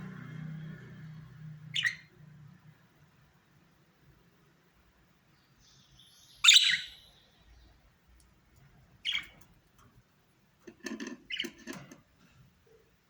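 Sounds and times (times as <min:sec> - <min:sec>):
budgerigars calling: 0:01.7 - 0:02.1, 0:06.4 - 0:07.0, 0:09.0 - 0:09.4
budgerigars chattering: 0:01.7 - 0:02.1, 0:06.4 - 0:07.0, 0:09.0 - 0:09.4.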